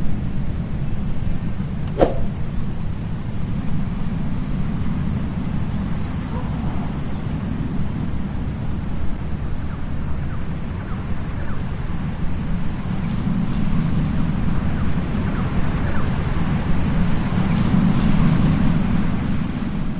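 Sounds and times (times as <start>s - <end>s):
wind rumbling on microphone: 1.9s - 2.5s.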